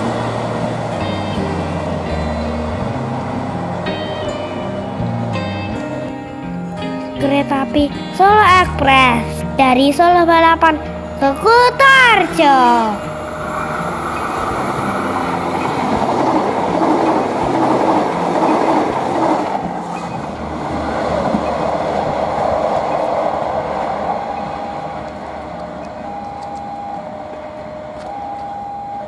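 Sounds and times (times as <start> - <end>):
train wheels clattering on rails: 10.9 - 29.0.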